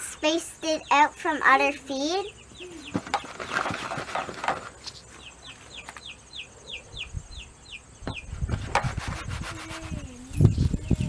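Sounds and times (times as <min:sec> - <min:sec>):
baby chicks peeping: 0:00.1 - 0:11.0
rustling: 0:02.9 - 0:06.0.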